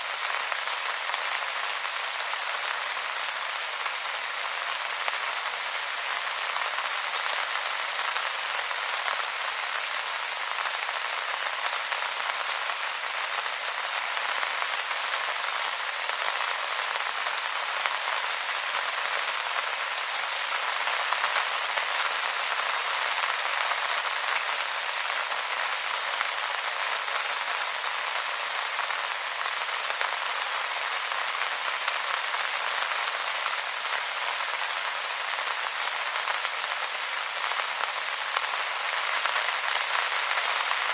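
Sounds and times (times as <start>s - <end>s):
rain on wet leaves: 0.0s - 40.9s.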